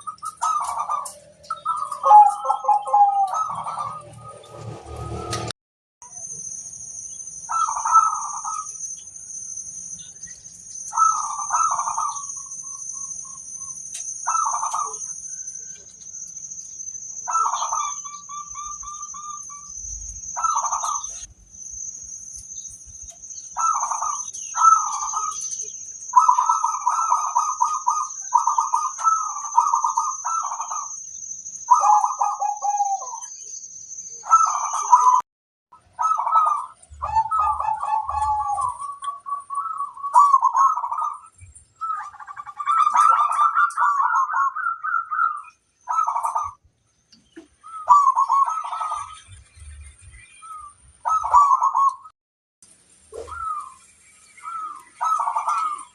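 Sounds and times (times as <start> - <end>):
doves cooing: 0.0 - 5.3, 7.5 - 8.7, 10.9 - 12.5, 14.2 - 15.1, 17.3 - 19.6, 20.4 - 21.3, 23.6 - 30.9, 31.7 - 33.2, 34.2 - 35.2, 36.0 - 46.6, 47.4 - 49.4, 50.4 - 52.1, 53.1 - 53.8, 54.4 - 55.9.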